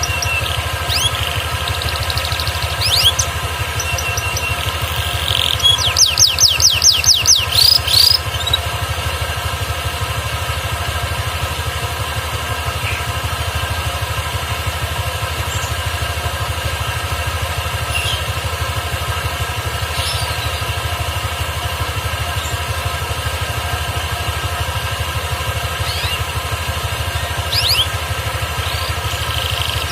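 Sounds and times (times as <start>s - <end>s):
canary singing: 0.0s - 8.9s, 12.6s - 13.7s, 17.8s - 18.5s, 19.8s - 20.9s, 25.6s - 29.9s
low engine-like hum: 0.0s - 29.9s.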